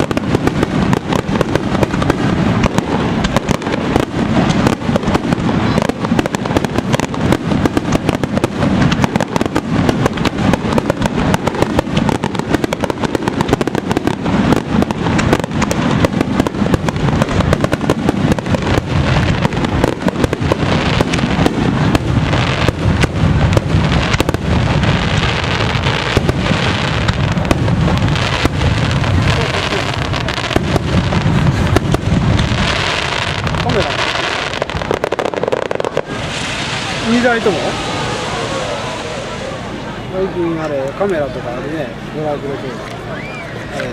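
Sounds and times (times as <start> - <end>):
fireworks cracks and bangs: 0.0 - 43.9.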